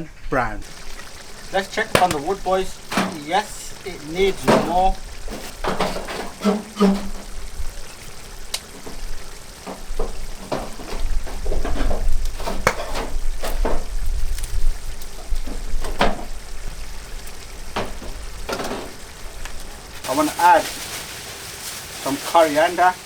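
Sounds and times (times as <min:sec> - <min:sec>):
spatula scraping a pan: 0:00.6 - 0:20.2
chicken sizzling in a pan: 0:00.6 - 0:23.0.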